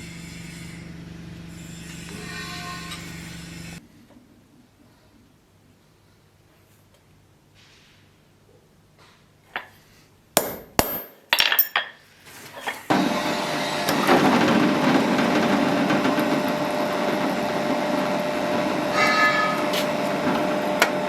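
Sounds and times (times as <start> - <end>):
hammer striking steel: 10.4 - 11.7
machine humming: 12.9 - 21.0.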